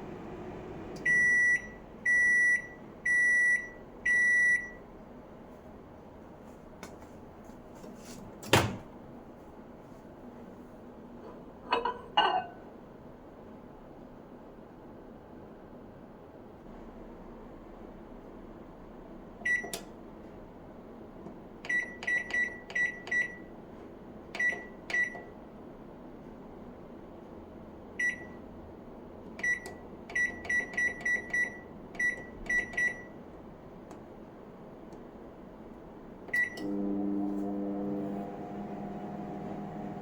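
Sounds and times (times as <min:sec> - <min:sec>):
microwave oven humming: 0:00.0 - 0:05.1, 0:35.3 - 0:40.0
microwave key beeps: 0:01.0 - 0:04.8, 0:21.7 - 0:23.5, 0:24.4 - 0:25.3, 0:28.0 - 0:28.4, 0:29.4 - 0:33.1, 0:36.3 - 0:36.7.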